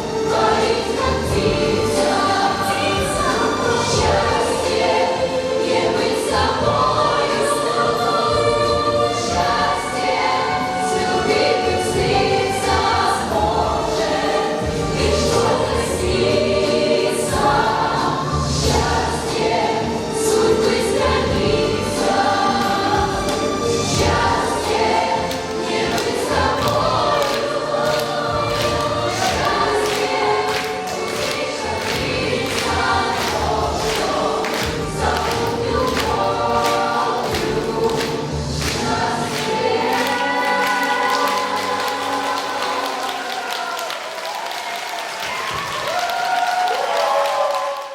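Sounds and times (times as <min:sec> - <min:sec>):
group of voices singing: 0:00.0 - 0:47.7
backing music with beat: 0:13.6 - 0:42.0.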